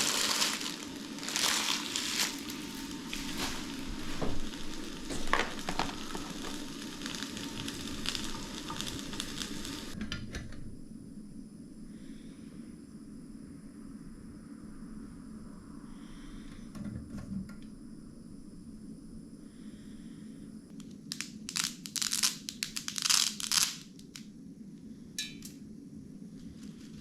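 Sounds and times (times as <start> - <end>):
material crinkling and crunching: 0.0 - 10.0, 21.1 - 24.2, 26.4 - 27.0
steady low hum: 0.0 - 21.2, 24.2 - 27.0.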